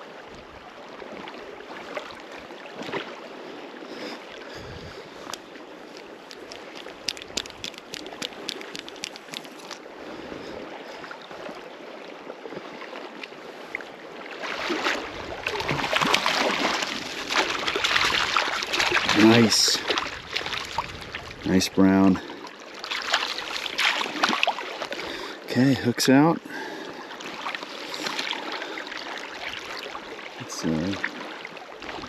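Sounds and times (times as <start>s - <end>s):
river water flowing: 0.0s - 32.0s
fish splashing: 5.2s - 9.9s, 14.5s - 19.1s, 22.8s - 24.8s.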